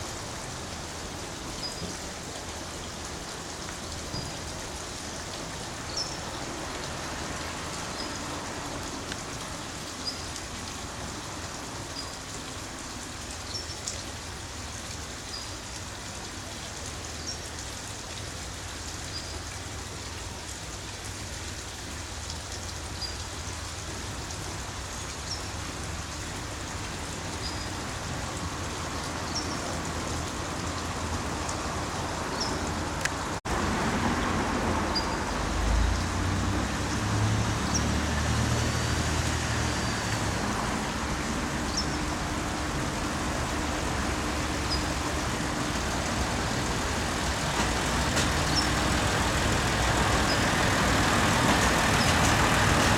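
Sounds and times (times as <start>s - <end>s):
steady rain: 0.0s - 52.9s
diesel railcar engine running: 39.7s - 52.9s.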